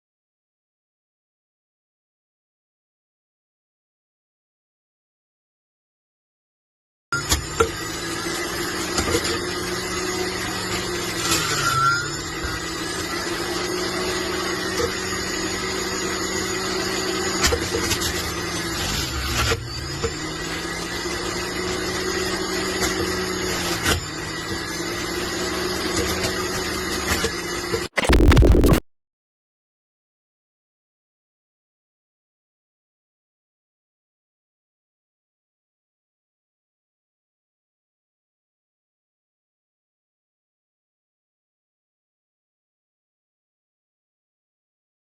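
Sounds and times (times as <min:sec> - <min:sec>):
electric juicer motor humming: 0:07.2 - 0:28.0.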